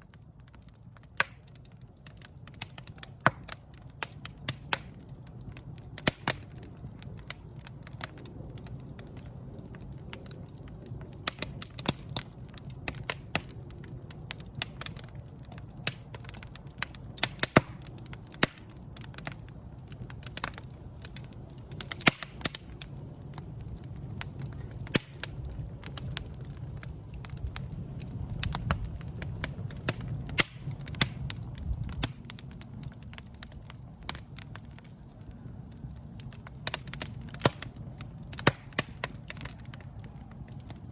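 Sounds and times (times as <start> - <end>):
low rumble of flames: 0.0 - 40.9
wood fire crackling and popping: 0.0 - 40.9.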